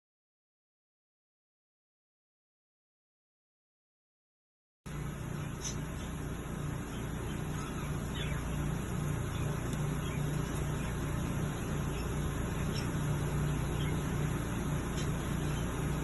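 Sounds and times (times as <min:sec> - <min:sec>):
cage birds chirping: 0:04.9 - 0:16.0.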